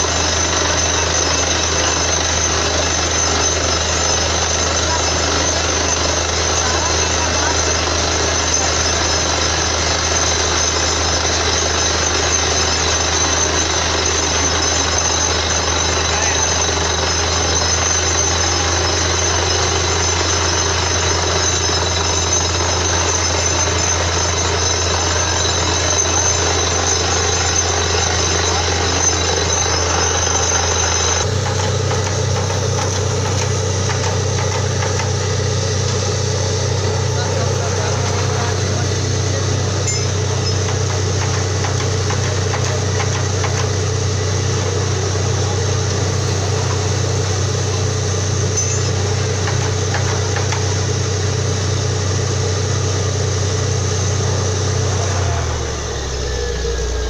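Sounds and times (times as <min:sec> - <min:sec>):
drilling rig engine drone: 0:00.0 - 0:57.0
hammering drilling noise: 0:00.0 - 0:57.0
high whine: 0:00.0 - 0:57.0.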